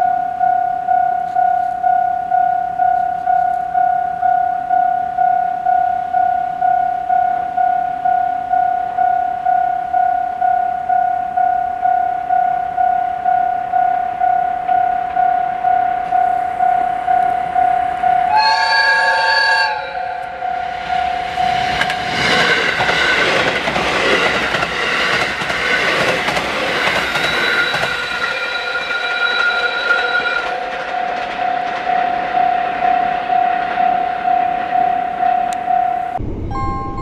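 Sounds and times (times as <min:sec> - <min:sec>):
level crossing alarm ringing: 0:00.0 - 0:23.3, 0:27.0 - 0:37.0
train rumbling past: 0:13.6 - 0:37.0
train horn blast: 0:18.2 - 0:20.7.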